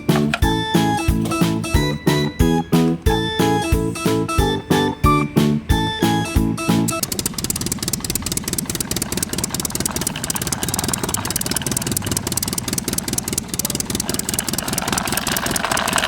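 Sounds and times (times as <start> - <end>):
small engine puttering: 6.9 - 16.0.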